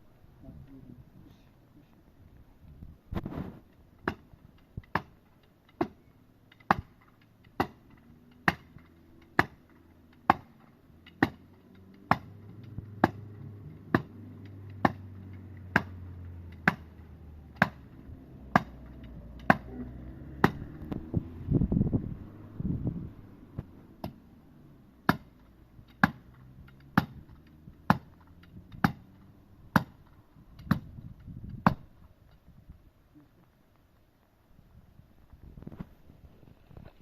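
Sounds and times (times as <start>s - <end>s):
hammering on wood: 4.0s - 4.3s, 6.6s - 7.0s, 7.6s - 7.8s, 8.4s - 16.0s, 16.6s - 17.9s, 18.5s - 20.8s, 25.0s - 25.4s, 26.0s - 26.3s, 26.9s - 28.2s, 28.8s - 29.1s, 29.7s - 30.0s, 30.6s - 30.9s
low hum: 10.6s - 32.0s.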